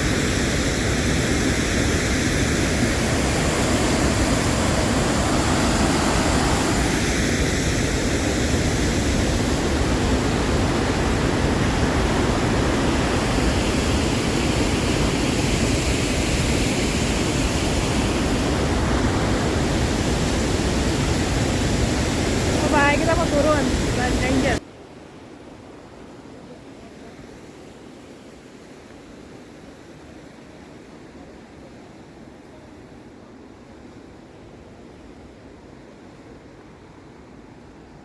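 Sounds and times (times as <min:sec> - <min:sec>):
waterfall rushing: 0:00.0 - 0:24.6.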